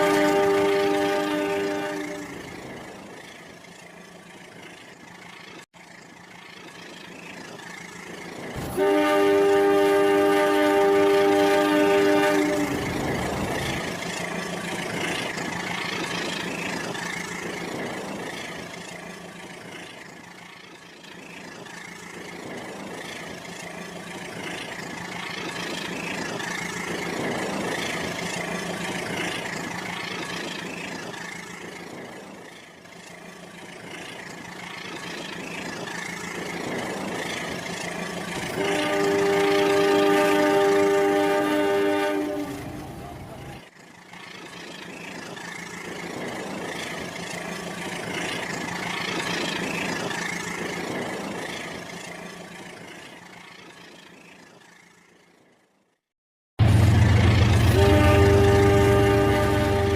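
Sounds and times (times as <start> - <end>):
toy train electronic horn: 0.0 - 2.4, 8.7 - 13.0, 38.5 - 43.0, 57.6 - 59.9
toy train running on track: 0.0 - 55.9, 57.8 - 59.9.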